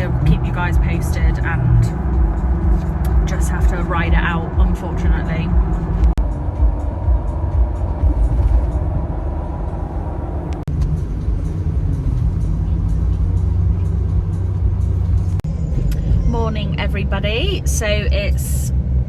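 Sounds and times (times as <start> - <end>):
car road noise rumble: 0.0 - 19.0.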